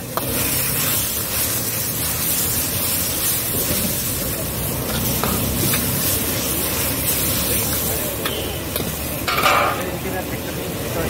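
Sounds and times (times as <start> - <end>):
food sizzling in wok: 0.0 - 11.0
metal ladle scraping wok: 0.1 - 10.0
ladle clinking against wok: 7.7 - 9.9.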